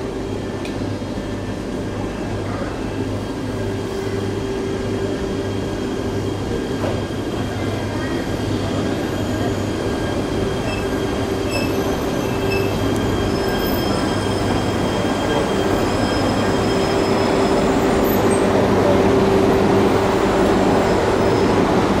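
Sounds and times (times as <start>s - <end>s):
wheel squeal: 10.6s - 18.4s.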